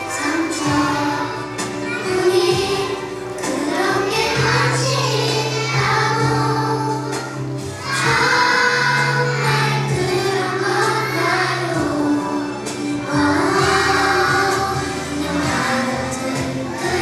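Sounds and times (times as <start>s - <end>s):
musical accompaniment: 0.0s - 17.0s
young children singing together: 0.0s - 17.0s.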